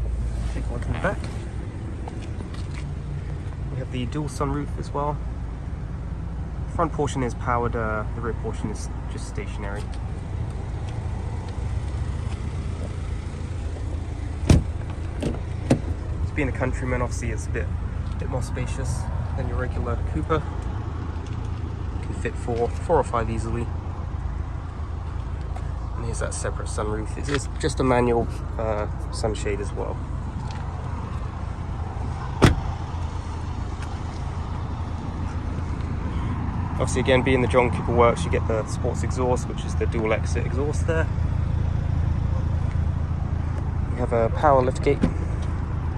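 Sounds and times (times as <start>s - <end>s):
car idling: 0.0s - 45.9s
steady low rumble: 0.0s - 45.9s
car door shutting: 14.4s - 16.0s, 32.3s - 32.8s, 44.9s - 45.3s.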